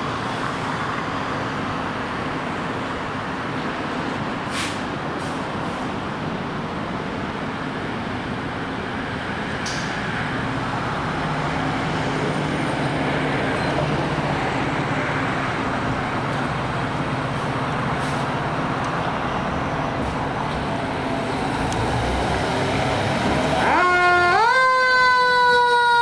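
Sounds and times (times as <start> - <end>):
heavy vehicle engine running: 0.0 - 23.8
road traffic: 0.0 - 26.0.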